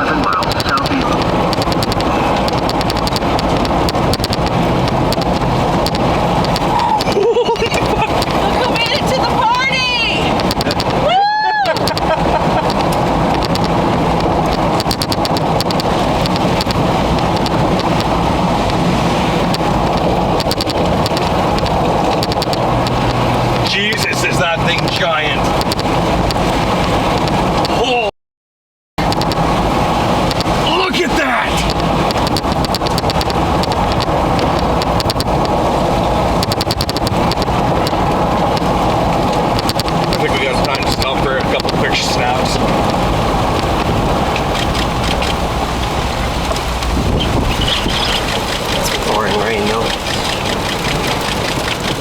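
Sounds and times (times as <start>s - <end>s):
rapid sharp ticks: 0.0s - 11.1s, 11.7s - 27.8s, 29.0s - 29.5s, 30.2s - 30.6s, 31.5s - 52.0s
rain and wind on vehicle: 0.0s - 28.1s, 29.0s - 52.0s
road and engine noise: 0.0s - 28.1s, 29.0s - 52.0s.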